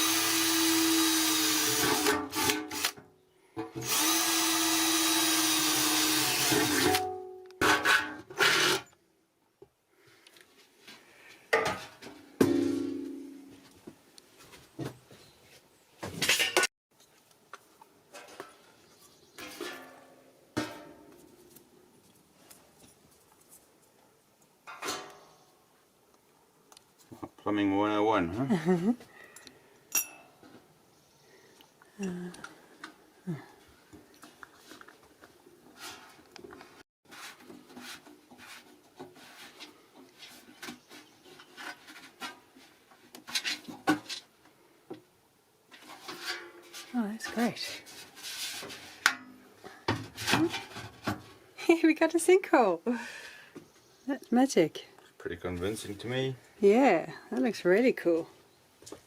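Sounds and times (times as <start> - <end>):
knocks and clinks: 29.9 - 30.4
rubbing and scraping: 35.6 - 44.3, 45.7 - 49.1.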